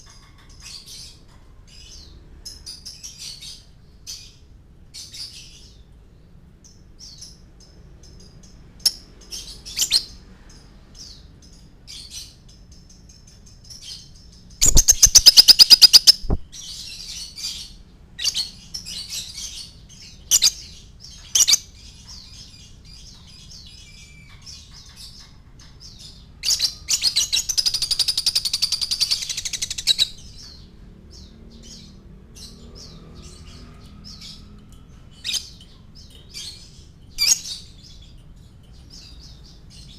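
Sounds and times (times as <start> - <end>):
bird chirping: 0.0 - 39.9
bird rapid trills: 14.5 - 16.5.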